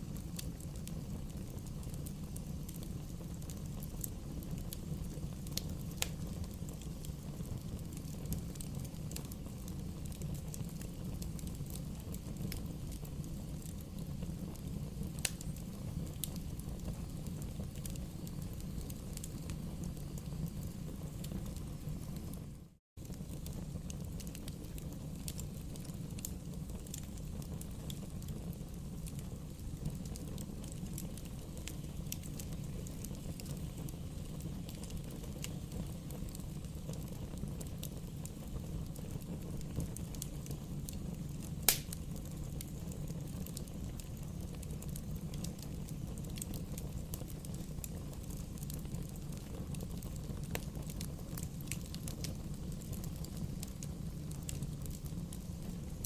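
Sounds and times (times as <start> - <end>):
bonfire rumble: 0.0 - 56.0
fire crackles: 0.0 - 56.0
loud fire pop: 41.7 - 42.0.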